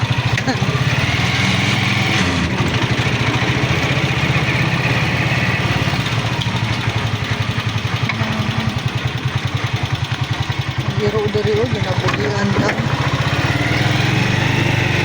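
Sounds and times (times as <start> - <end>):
small motorcycle engine putter: 5.8 - 13.4.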